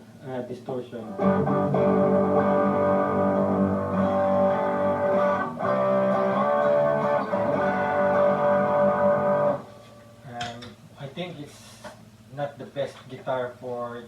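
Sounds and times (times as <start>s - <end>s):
distorted electric guitar chords: 1.1s - 10.3s.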